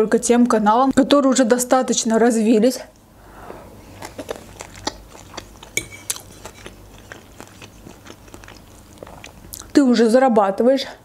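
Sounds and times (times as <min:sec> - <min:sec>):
chewing with wet mouth clicks: 0:03.9 - 0:09.8
fork clinking on plate: 0:05.8 - 0:06.7.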